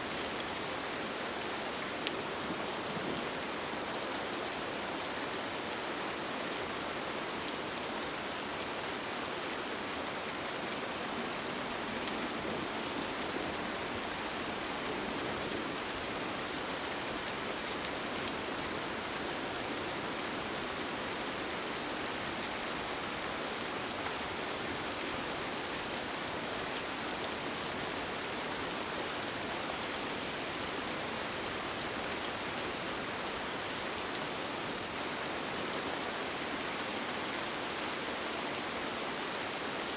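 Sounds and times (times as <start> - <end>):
rain falling on a tent: 0.0 - 39.9.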